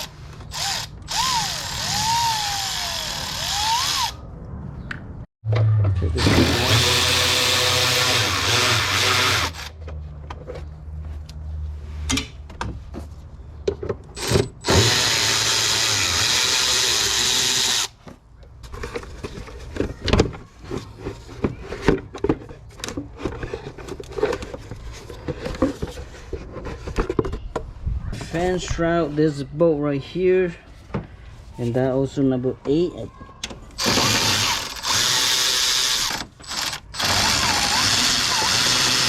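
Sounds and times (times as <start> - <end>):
tools and parts clattering: 18.5 - 27.7.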